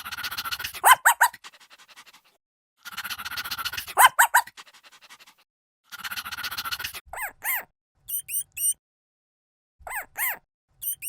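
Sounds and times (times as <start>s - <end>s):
animal chattering and squeaking: 0.0s - 8.8s, 9.9s - 11.0s.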